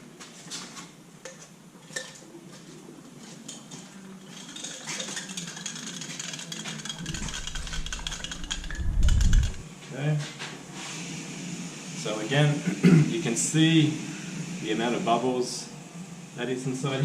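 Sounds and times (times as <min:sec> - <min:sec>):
mixer scraping container: 0:04.3 - 0:09.6.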